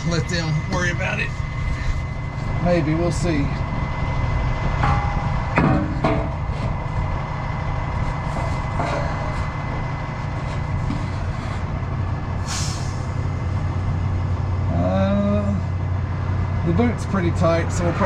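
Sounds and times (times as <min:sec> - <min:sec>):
truck engine idling: 0:00.0 - 0:18.0
brief hiss: 0:12.4 - 0:13.2.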